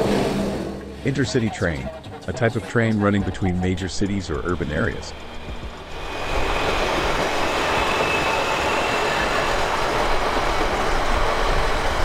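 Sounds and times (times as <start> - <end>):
train wheels rushing on rails: 0.0 - 12.0
faint high squeal: 6.1 - 9.8.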